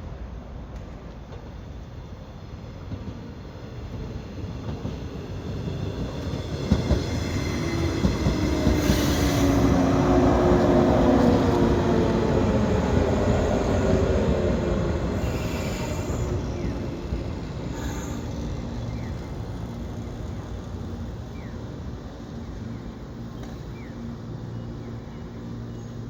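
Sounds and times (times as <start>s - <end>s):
electric train braking: 15.1s - 19.5s
wheels and brakes squealing: 15.2s - 19.4s.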